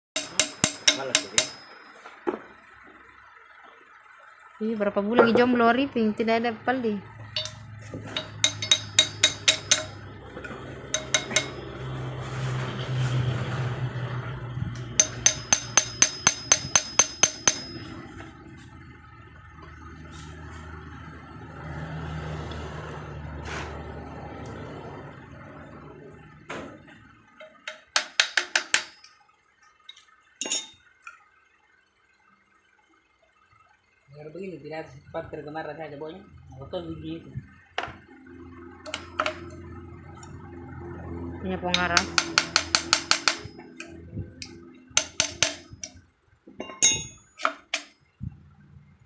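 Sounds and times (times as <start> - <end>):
ringing metal clink: 0.2 - 2.1, 7.3 - 11.9, 14.7 - 18.3, 29.9 - 30.9, 46.6 - 47.9
metal taps on engine parts: 0.2 - 2.4, 7.3 - 12.0, 14.7 - 18.0, 27.4 - 29.2, 38.8 - 39.6, 41.7 - 47.9
metal parts clinking: 7.4 - 11.6, 30.4 - 30.9, 46.6 - 48.0
low rumble: 43.5 - 44.9.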